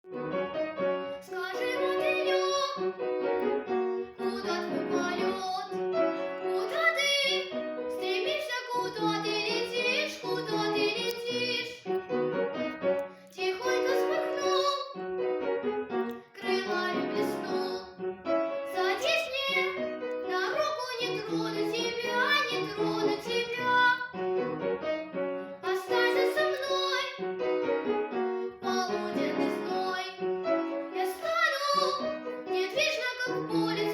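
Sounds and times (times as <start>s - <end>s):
piano accompaniment: 0.0s - 33.9s
girl singing: 1.1s - 12.0s, 13.3s - 15.0s, 16.3s - 18.0s, 18.6s - 24.2s, 25.5s - 27.4s, 28.6s - 33.9s.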